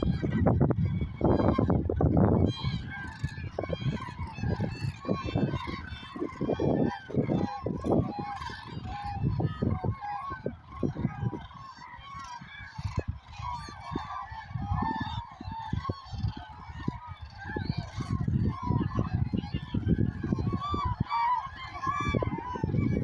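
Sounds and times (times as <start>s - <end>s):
geese and cranes honking: 0.0s - 23.0s.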